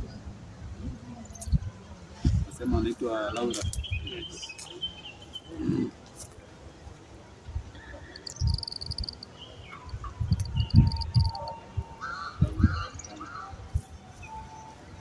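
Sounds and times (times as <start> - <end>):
birds chirping: 2.5 - 6.8, 7.5 - 15.0.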